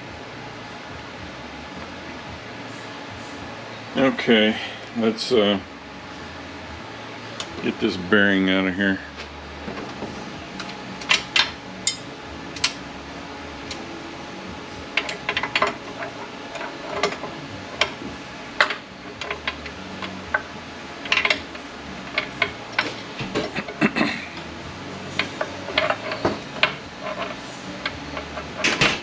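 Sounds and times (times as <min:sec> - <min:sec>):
steady background hum: 0:00.0 - 0:29.0
hand tools clinking on metal: 0:21.0 - 0:24.5, 0:25.1 - 0:29.0.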